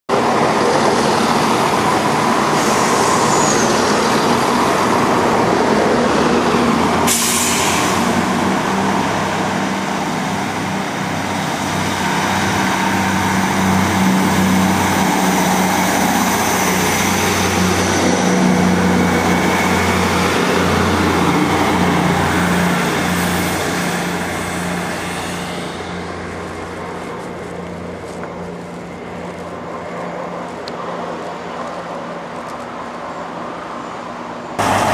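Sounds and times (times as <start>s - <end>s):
diesel train engine humming: 0.1s - 34.9s
sharp hiss of air: 2.5s - 3.8s, 7.0s - 8.2s.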